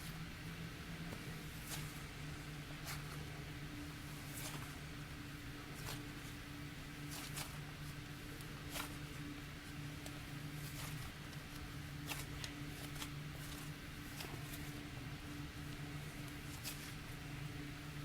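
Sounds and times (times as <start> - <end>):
steady low hum: 0.0 - 18.0
slime squishing by hand: 5.7 - 14.8.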